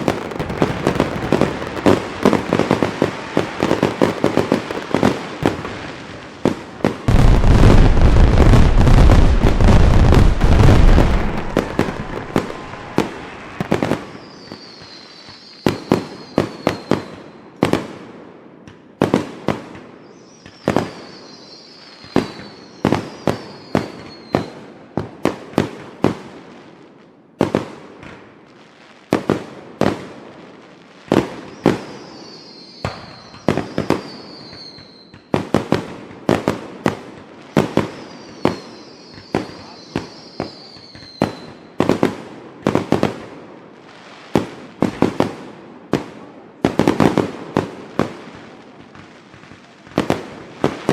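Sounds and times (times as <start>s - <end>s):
fireworks bangs: 0.0s - 26.6s, 29.0s - 50.9s
faint high falling whistles: 10.4s - 17.4s, 20.0s - 24.6s, 31.5s - 35.3s, 37.8s - 41.7s.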